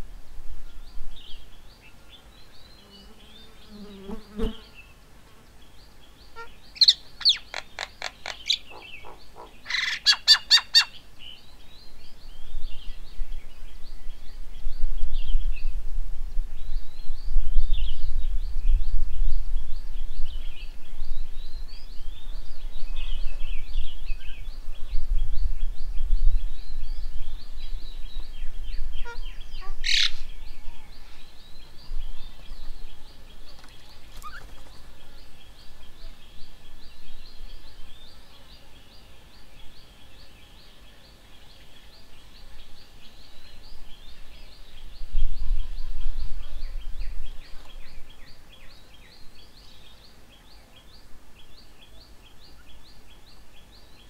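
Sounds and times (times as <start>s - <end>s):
wind rumble on microphone: 0.0s - 2.5s, 11.7s - 38.3s, 42.4s - 49.4s
birds chirping: 0.7s - 15.7s, 16.6s - 54.0s.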